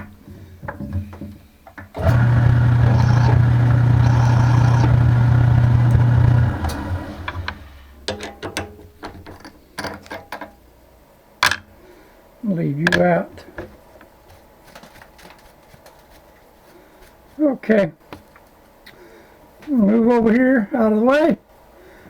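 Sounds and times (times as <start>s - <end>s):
electric motor humming: 2.0s - 7.9s.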